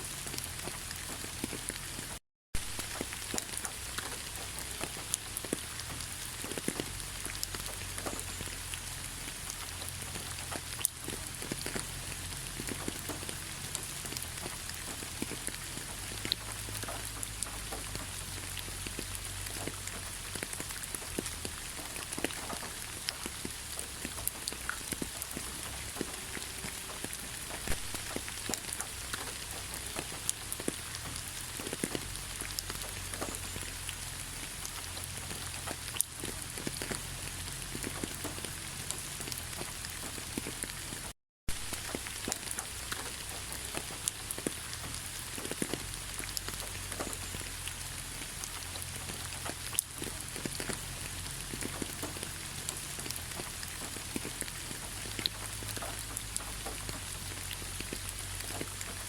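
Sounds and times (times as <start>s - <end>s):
raindrops hitting: 0.0s - 59.0s.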